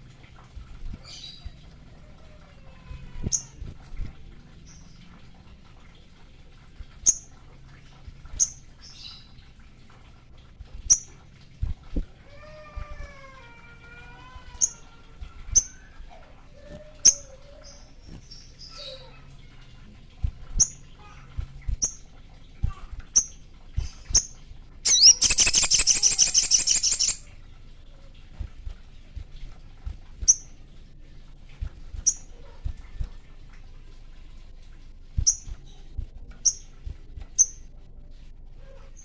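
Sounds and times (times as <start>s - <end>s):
songbird high chips: 24.8s - 27.3s
songbird rapid trill: 24.8s - 27.3s
songbird whistled phrase: 24.9s - 27.2s.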